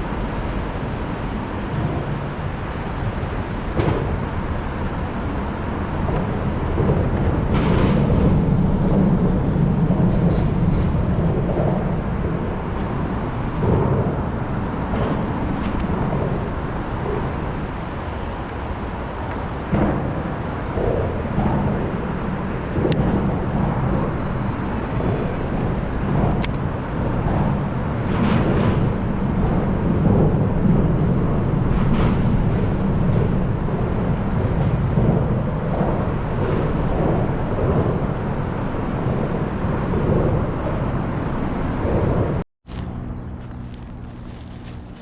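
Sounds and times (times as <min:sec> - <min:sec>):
low outdoor rumble: 0:00.0 - 0:45.0
footsteps on walking path: 0:42.7 - 0:45.0.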